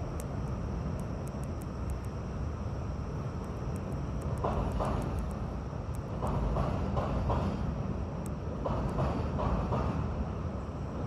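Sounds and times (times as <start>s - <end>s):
train rumbling: 0.0s - 11.0s
wheels clacking over rail joints: 4.3s - 5.4s, 6.0s - 10.4s.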